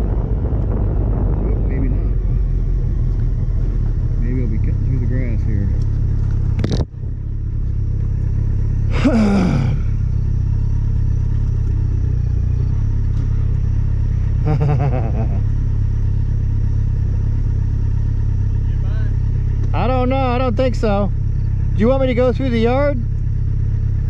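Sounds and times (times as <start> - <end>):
wind buffeting microphone: 0.0 - 7.3
motorcycle low rumble: 0.0 - 24.0.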